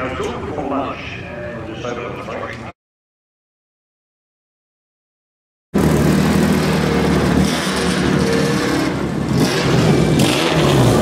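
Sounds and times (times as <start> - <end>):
small racing car engines revving: 5.8 - 11.0.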